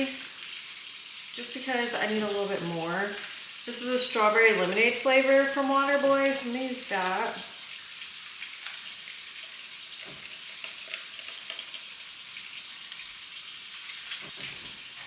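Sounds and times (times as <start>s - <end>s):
kitchen tap running: 0.0s - 15.0s.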